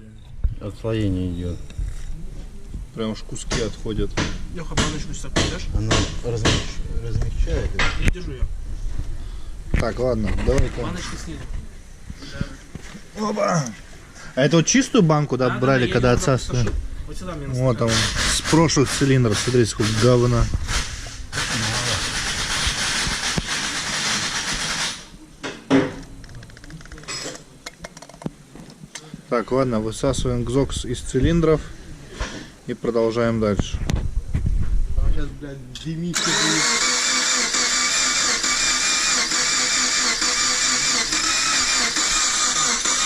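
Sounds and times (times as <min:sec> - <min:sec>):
pressurised spray hissing: 0:17.9 - 0:25.1
engine cranking on starter: 0:36.2 - 0:43.0.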